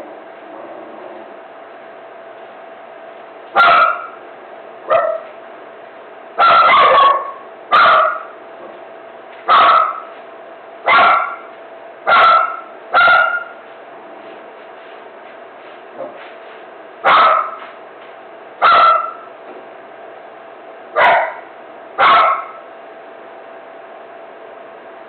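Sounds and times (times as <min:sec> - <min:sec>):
dog barking: 0:03.6 - 0:04.2, 0:04.9 - 0:05.4, 0:06.4 - 0:08.4, 0:09.5 - 0:10.1, 0:10.9 - 0:11.5, 0:12.1 - 0:13.6, 0:17.0 - 0:17.7, 0:18.6 - 0:19.3, 0:21.0 - 0:22.6.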